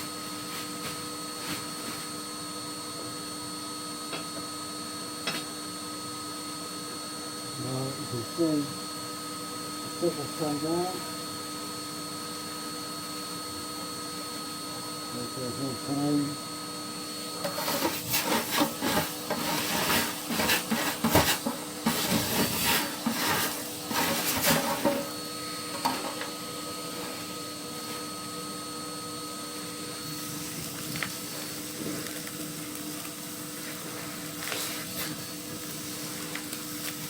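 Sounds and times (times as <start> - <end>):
motor hum with high whine: 0.0 - 37.0
chimney brush scraping: 17.4 - 25.1.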